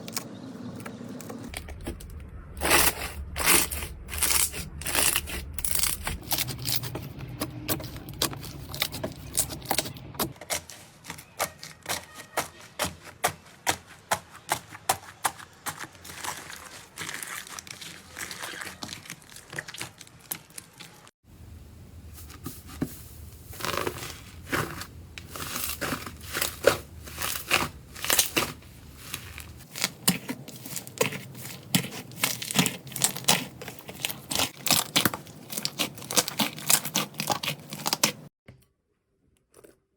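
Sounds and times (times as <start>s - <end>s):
slime crackling and popping: 1.5s - 7.0s, 15.6s - 21.1s, 23.5s - 38.2s.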